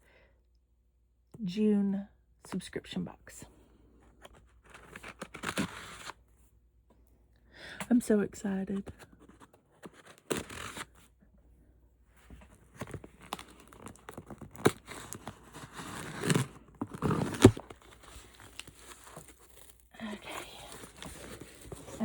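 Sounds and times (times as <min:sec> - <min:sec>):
packaging ripping and crinkling: 0:04.7 - 0:06.2, 0:09.9 - 0:11.0, 0:12.7 - 0:22.0.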